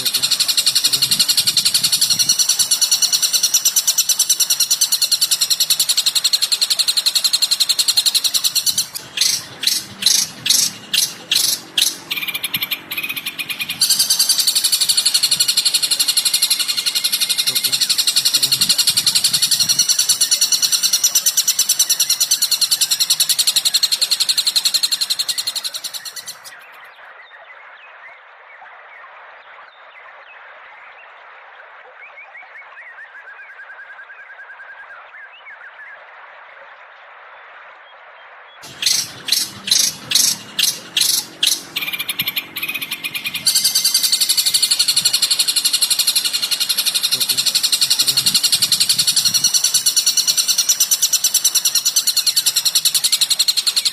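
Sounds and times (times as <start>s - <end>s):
loud separate bird calls: 0.0s - 26.6s, 38.6s - 53.9s
rapid high bird chirping: 0.0s - 26.6s, 38.6s - 53.9s.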